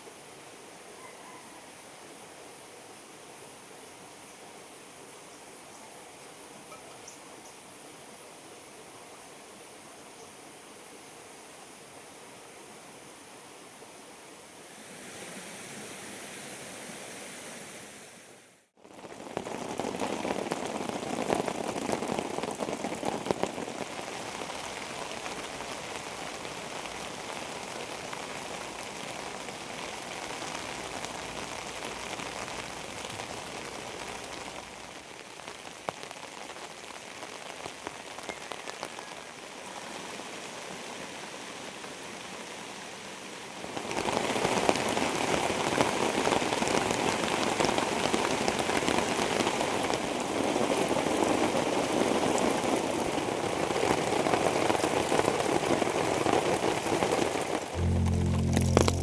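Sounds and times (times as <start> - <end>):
rain pattering: 18.8 - 42.6, 43.5 - 59.0.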